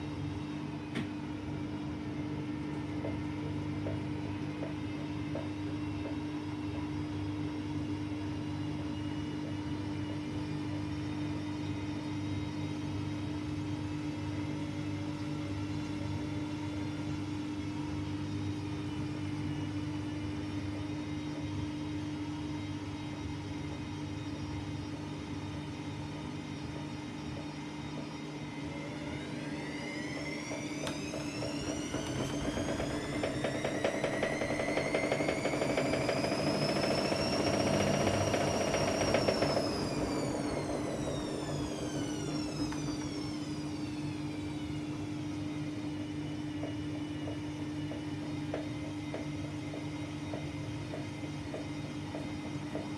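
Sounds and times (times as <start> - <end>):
washer-dryer humming and rumbling: 0.0 - 52.9
motor whine rising in pitch: 26.4 - 50.6.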